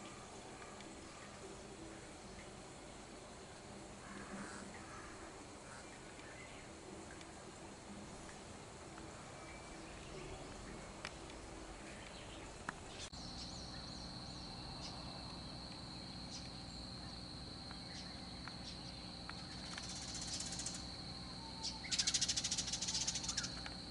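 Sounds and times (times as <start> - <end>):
birds chirping: 0.0 - 23.9
faint steady high whine: 0.0 - 23.9
bird chattering trill: 21.6 - 23.5.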